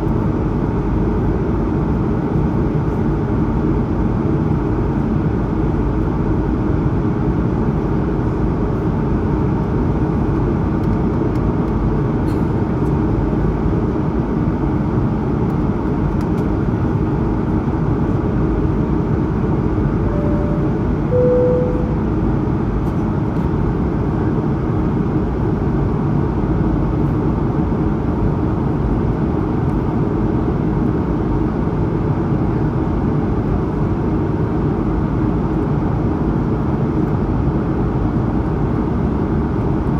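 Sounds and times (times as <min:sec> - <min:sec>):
jet engine roar in cabin: 0:00.0 - 0:39.9
two-note chime: 0:20.1 - 0:22.2.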